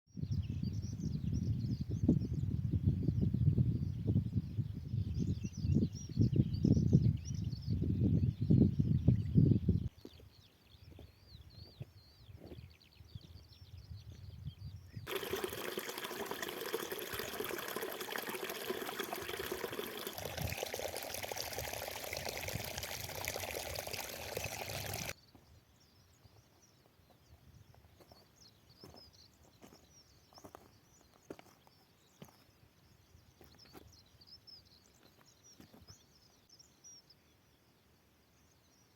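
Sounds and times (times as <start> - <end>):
faint high bird chirps: 0.2 - 38.9
running water: 15.1 - 25.2.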